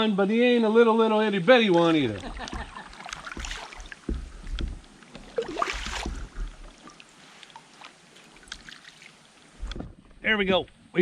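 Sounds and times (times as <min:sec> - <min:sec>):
light water sounds: 0:01.6 - 0:11.0
clicks and knocks against kayak hull: 0:01.7 - 0:08.7, 0:09.6 - 0:10.8.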